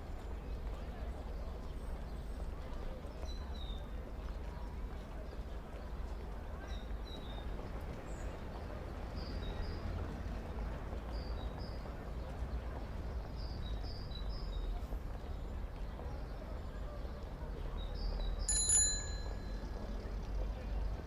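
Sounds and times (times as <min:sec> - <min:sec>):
low street rumble and murmur: 0:00.0 - 0:21.0.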